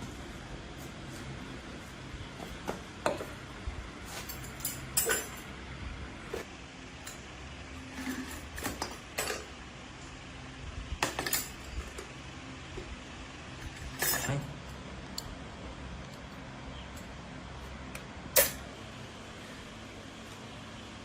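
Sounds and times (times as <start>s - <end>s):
steady low hum: 0.0s - 21.0s
metal tools clinking: 4.1s - 5.5s, 11.0s - 12.1s, 13.7s - 14.5s.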